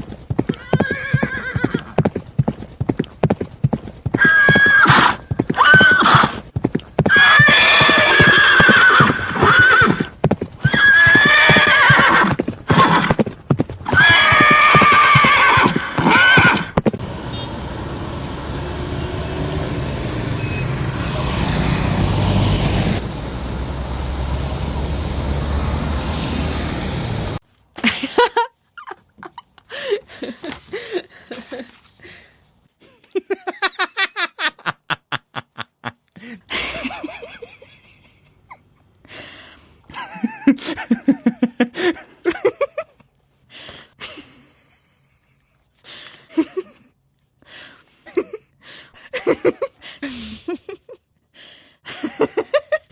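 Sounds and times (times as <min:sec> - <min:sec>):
hooves clip-clopping: 0:00.0 - 0:17.5
horse whinnying: 0:00.5 - 0:02.0, 0:04.1 - 0:06.4, 0:07.0 - 0:16.9.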